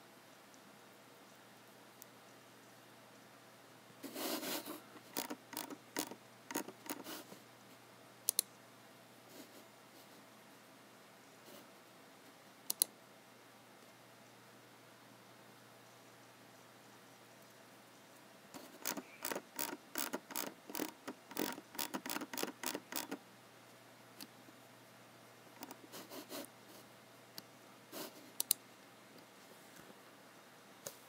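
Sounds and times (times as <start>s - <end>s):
typing on computer keyboard: 5.0s - 7.2s, 18.6s - 23.2s, 25.6s - 25.8s.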